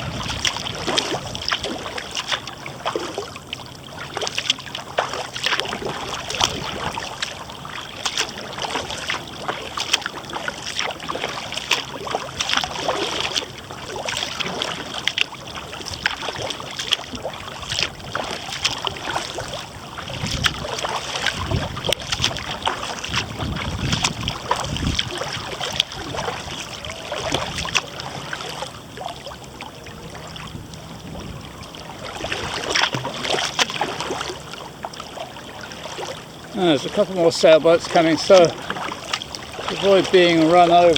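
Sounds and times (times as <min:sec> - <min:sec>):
wind rumbling on microphone: 0:00.0 - 0:03.3, 0:03.9 - 0:34.4
paddle strokes splashing: 0:00.0 - 0:40.9
water lapping against hull: 0:00.0 - 0:40.9.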